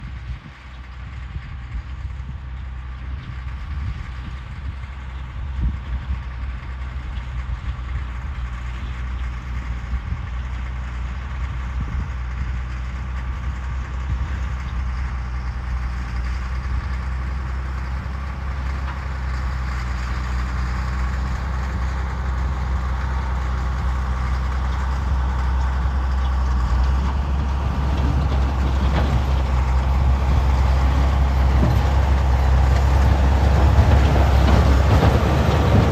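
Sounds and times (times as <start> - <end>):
truck engine running under load: 0.0 - 35.9.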